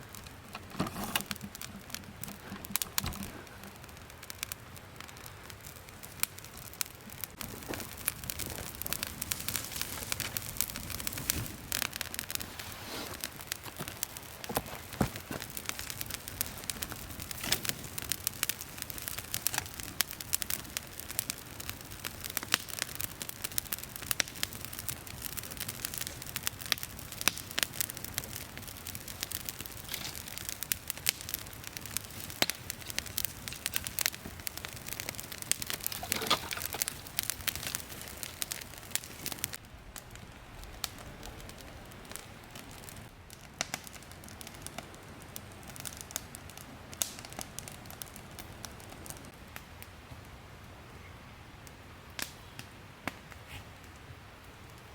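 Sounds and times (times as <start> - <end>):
campfire crackling and popping: 0.0 - 54.9.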